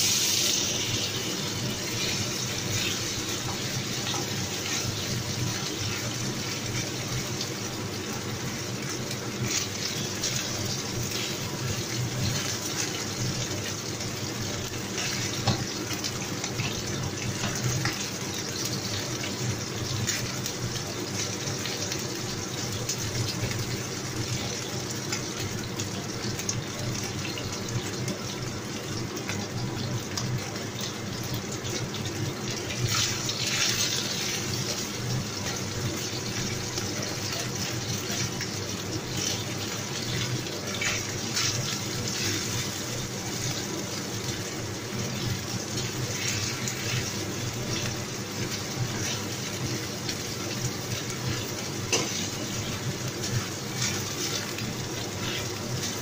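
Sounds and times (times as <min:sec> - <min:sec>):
chicken sizzling in hot oil: 0:00.0 - 0:56.0.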